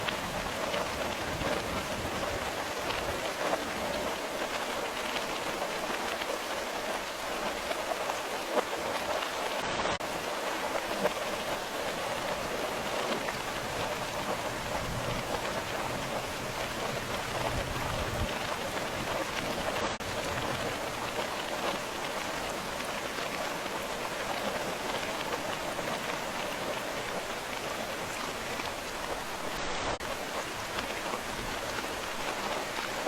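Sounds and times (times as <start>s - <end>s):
rain pattering: 0.0s - 33.0s.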